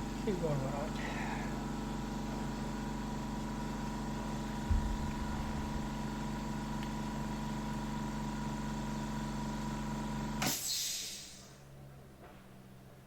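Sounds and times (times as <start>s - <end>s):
milling machine humming: 4.3s - 7.0s
brief hiss: 10.4s - 11.5s.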